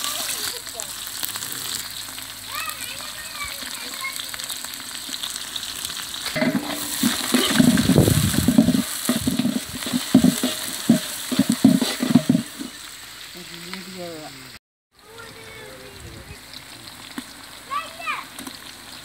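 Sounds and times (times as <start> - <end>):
shallots sizzling in pot: 0.0 - 19.0
ladle scraping and knocking pot: 6.3 - 12.8.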